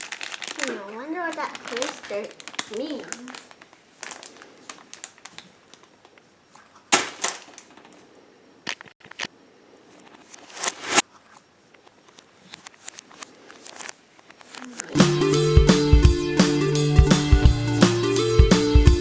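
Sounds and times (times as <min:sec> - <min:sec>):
paper package rustling: 0:00.0 - 0:08.1, 0:10.0 - 0:11.0, 0:12.1 - 0:15.0
paper crinkling: 0:00.0 - 0:09.3, 0:10.0 - 0:15.0.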